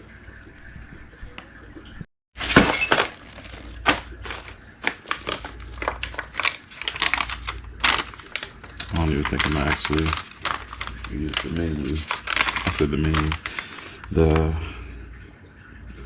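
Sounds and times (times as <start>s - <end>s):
plastic and paper crinkling: 2.4s - 14.5s
sharp clicks and clatters: 3.9s - 13.6s.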